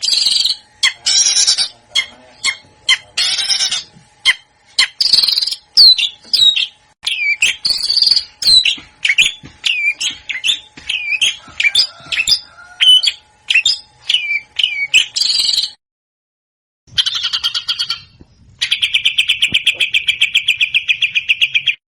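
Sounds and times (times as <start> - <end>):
bird buzzy trill: 0.0 - 15.8, 16.9 - 21.8
songbird whistled notes: 4.8 - 15.8.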